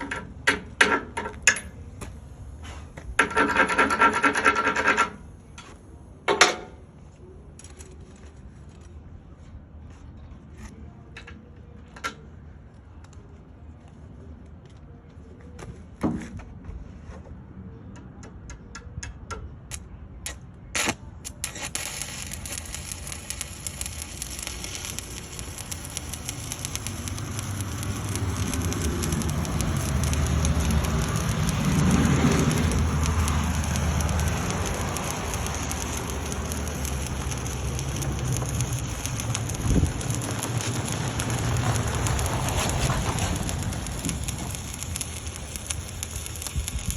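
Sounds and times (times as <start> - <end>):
welding arc crackling and sizzling: 20.3 - 46.9.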